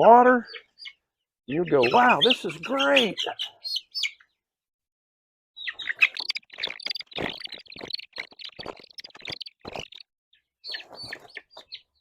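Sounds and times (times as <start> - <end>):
baby chicks peeping: 0.3 - 4.4, 5.6 - 12.0
knocks and scratches: 6.2 - 10.0.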